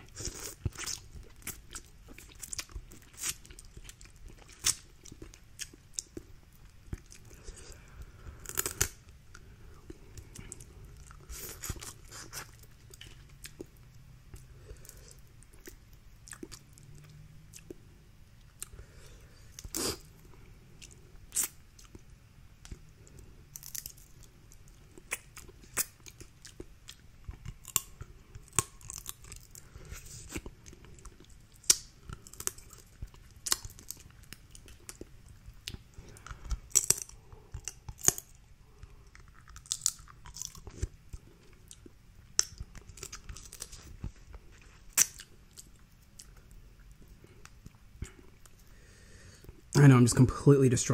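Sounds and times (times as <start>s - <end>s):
chewing: 0.0s - 49.6s
shells cracking and snapping: 8.4s - 9.0s, 35.7s - 38.4s.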